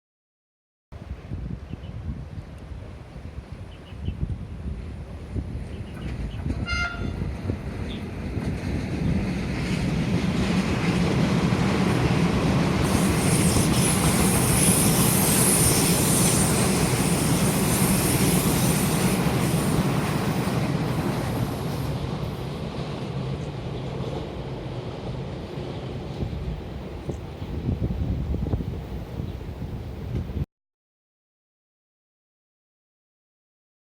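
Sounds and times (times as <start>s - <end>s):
train wheels rumbling on rail: 2.2s - 30.4s
electric train passing: 4.6s - 30.4s.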